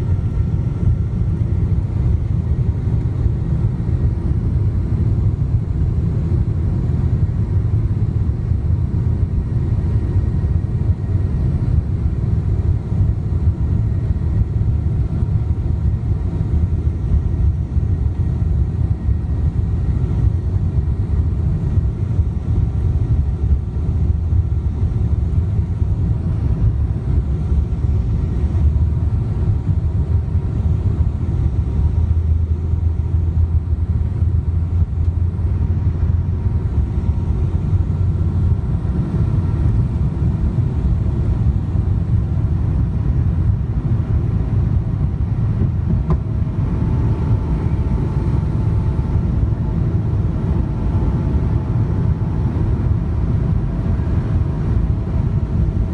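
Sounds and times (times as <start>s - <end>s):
jet engines rumbling: 0.0s - 55.9s.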